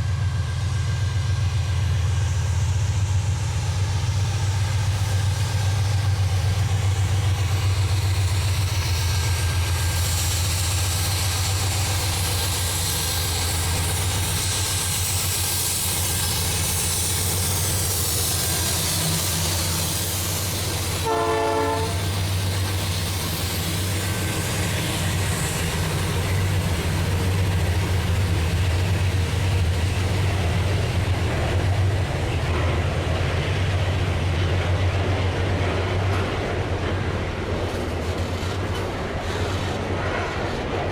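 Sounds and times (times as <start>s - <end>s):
locomotive engine drone: 0.0s - 40.9s
wheel and rail noise: 0.0s - 40.9s
train horn blast: 21.0s - 22.2s.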